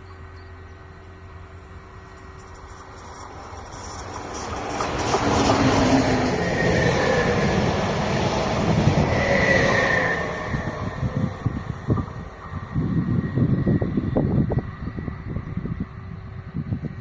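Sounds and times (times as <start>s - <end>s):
train passing: 0.0s - 17.0s
high wheel squeal: 9.0s - 11.6s.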